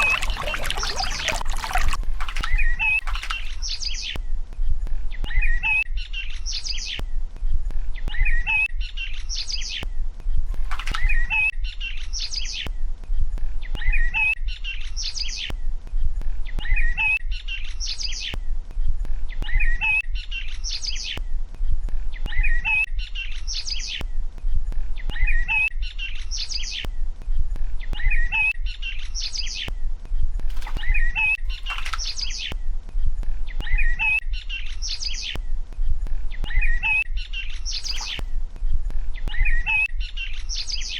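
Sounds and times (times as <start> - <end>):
bird chirps: 36.3 - 38.4.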